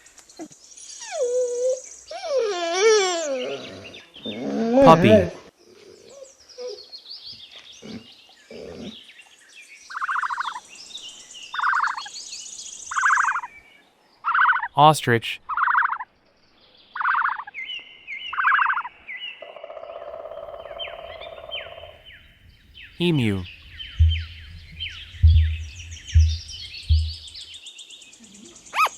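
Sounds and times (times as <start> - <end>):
birds chirping: 20.6 - 27.6.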